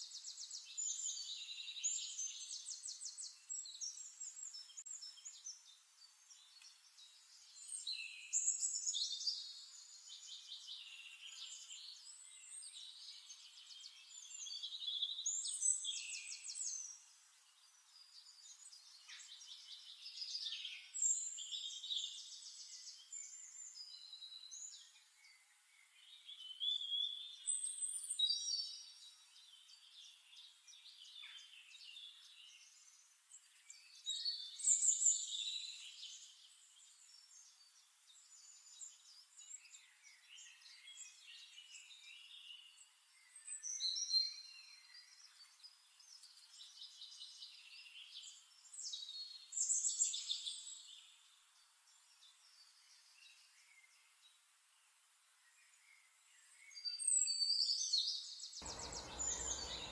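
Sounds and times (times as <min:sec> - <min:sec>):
birds chirping and singing: 0:58.6 - 0:59.9.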